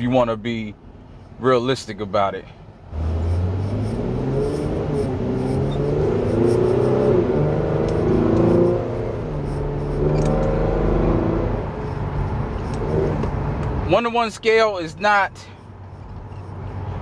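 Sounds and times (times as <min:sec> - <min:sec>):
road noise: 0:00.0 - 0:17.0
car engine accelerating: 0:02.9 - 0:13.8.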